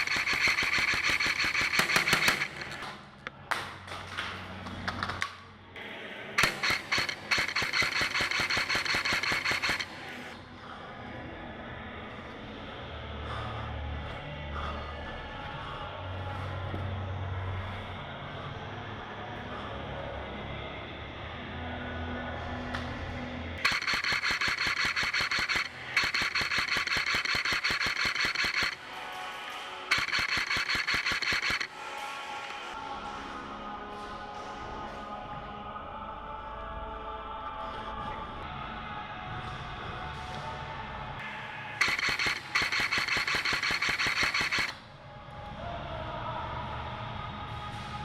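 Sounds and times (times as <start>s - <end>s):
airsoft gun full-auto burst: 0.0s - 2.8s, 6.4s - 10.4s, 23.6s - 31.8s, 41.8s - 44.8s
airsoft gun motor whine: 0.0s - 2.8s, 23.6s - 28.8s
sharp clicks: 0.0s - 2.9s, 6.4s - 9.9s, 23.6s - 28.8s, 29.9s - 31.7s, 41.8s - 44.8s.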